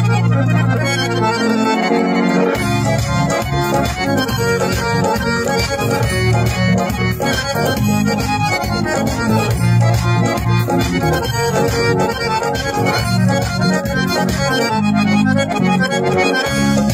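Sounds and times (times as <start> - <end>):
harmonium playing: 0.0 - 16.9.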